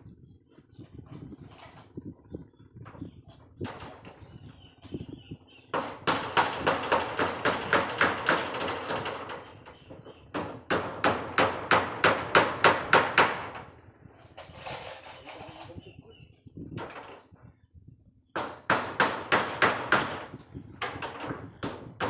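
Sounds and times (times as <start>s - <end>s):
hammer driving nails: 5.7s - 13.6s, 18.4s - 22.0s.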